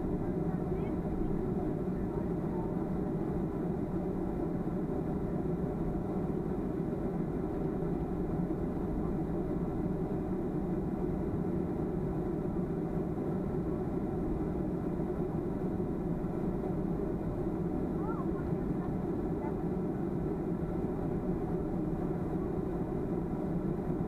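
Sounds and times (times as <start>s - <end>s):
airplane cabin engine rumble: 0.0s - 24.0s.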